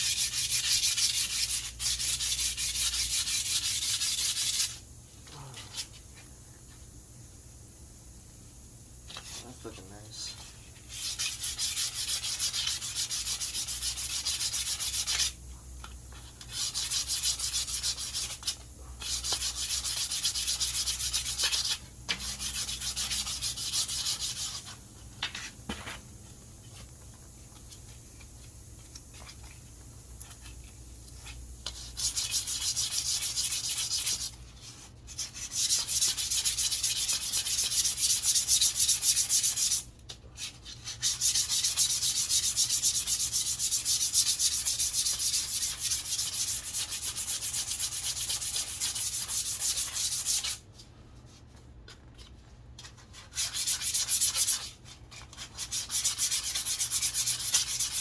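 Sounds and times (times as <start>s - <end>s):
sandpaper rubbing on wood: 0.0s - 4.8s, 9.1s - 15.4s, 16.4s - 24.8s, 31.2s - 39.9s, 40.6s - 50.6s, 52.9s - 58.0s.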